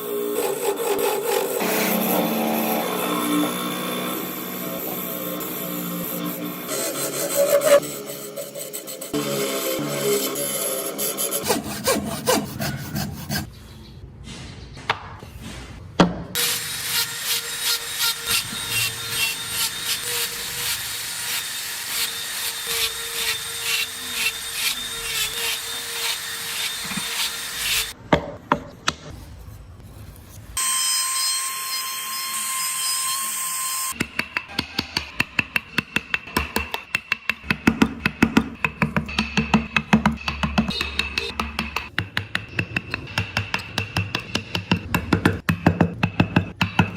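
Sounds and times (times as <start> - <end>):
hand saw sawing wood: 0.0 - 13.5, 16.4 - 28.0.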